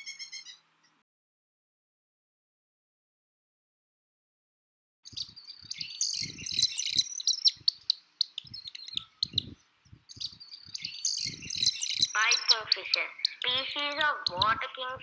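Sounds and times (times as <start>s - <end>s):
birds chirping: 5.0s - 15.0s.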